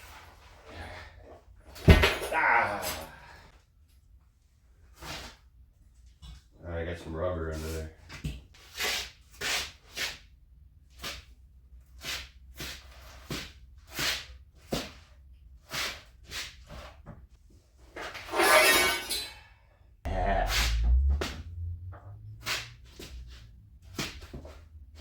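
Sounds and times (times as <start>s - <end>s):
steel tubing squealing: 18.2s - 19.5s.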